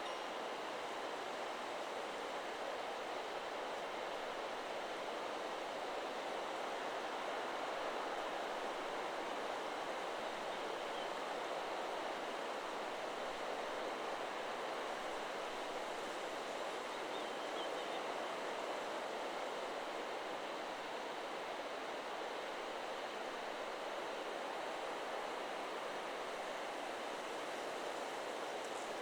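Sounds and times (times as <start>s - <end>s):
wind rustling through trees: 7.2s - 29.0s.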